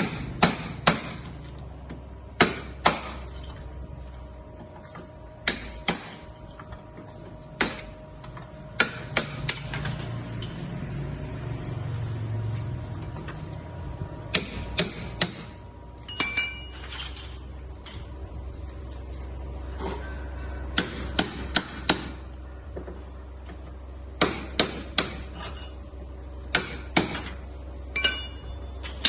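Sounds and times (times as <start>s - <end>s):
hammer striking metal: 28.0s - 28.6s.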